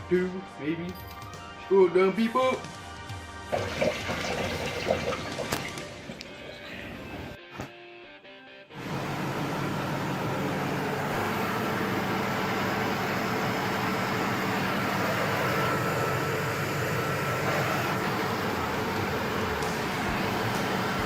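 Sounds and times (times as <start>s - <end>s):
car engine idling: 8.8s - 21.0s.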